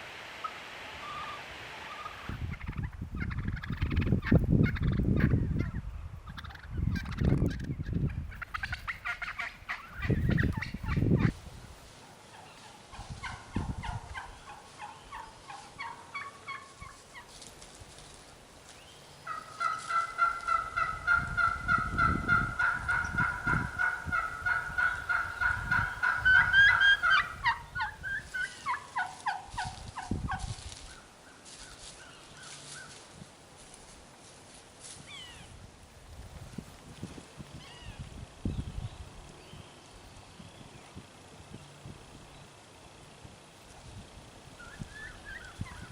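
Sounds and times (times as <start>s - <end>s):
wild turkeys gobbling: 0.4s - 11.4s, 12.0s - 17.3s, 19.2s - 33.0s, 44.6s - 45.9s.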